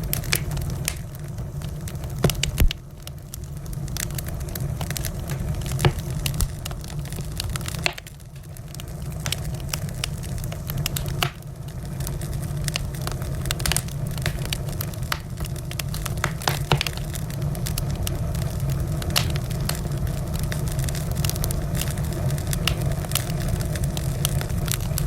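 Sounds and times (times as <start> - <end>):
low fire rumble: 0.0 - 25.0
wood fire crackling: 0.0 - 25.0.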